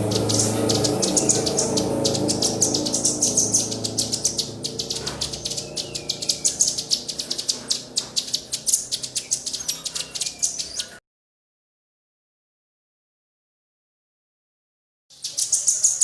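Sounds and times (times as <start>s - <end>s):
bird whistled notes: 0.0s - 11.0s
songbirds chirping: 0.0s - 11.0s, 15.1s - 16.0s.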